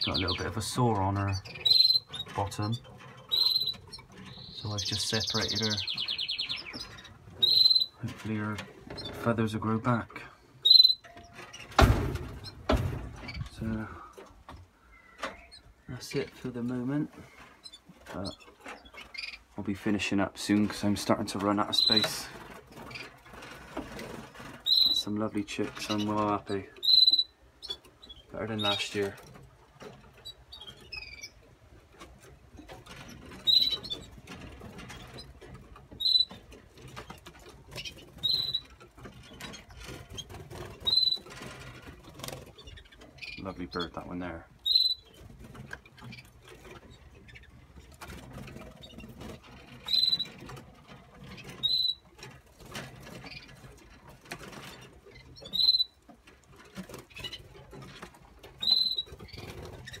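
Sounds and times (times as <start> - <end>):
birds rustling in cages: 0.0 - 60.0
canaries chirping: 0.0 - 60.0
light clicks and scratching: 11.0 - 27.0, 27.6 - 60.0.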